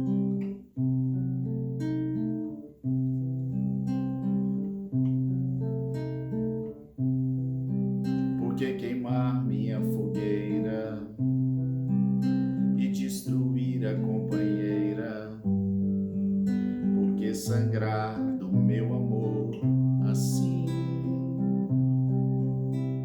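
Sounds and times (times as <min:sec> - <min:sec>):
acoustic guitar plucked chords: 0:00.0 - 0:23.0
person singing: 0:08.4 - 0:11.2, 0:12.6 - 0:15.6, 0:16.8 - 0:22.7.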